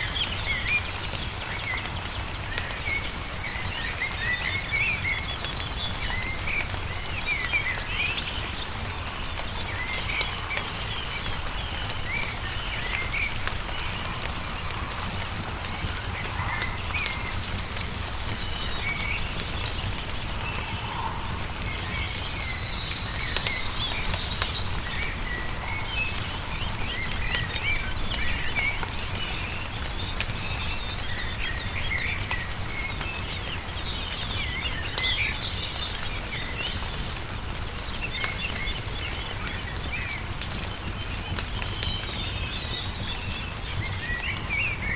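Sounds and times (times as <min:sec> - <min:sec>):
songbirds chirping and trilling: 0:00.0 - 0:44.9
wood fire crackling: 0:00.0 - 0:44.9
steady low rumble: 0:05.9 - 0:30.1.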